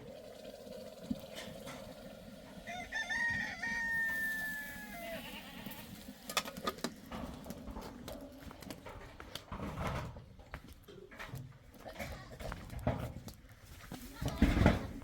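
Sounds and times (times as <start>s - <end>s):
rooster crowing: 2.6s - 5.4s.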